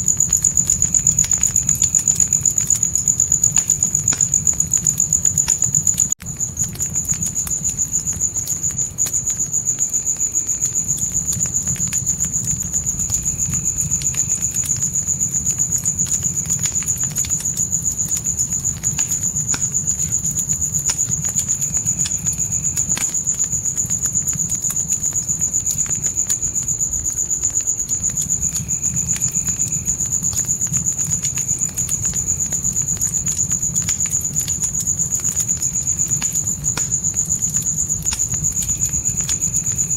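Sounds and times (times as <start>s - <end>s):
crickets trilling: 0.0s - 39.9s
fire crackling and popping: 0.0s - 39.9s.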